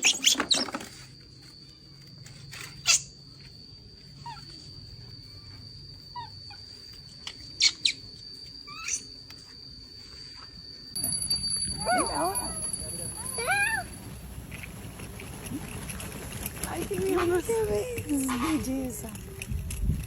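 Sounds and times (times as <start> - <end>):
faint high whine: 0.1 - 20.0
animal chirps falling in pitch: 6.1 - 9.2.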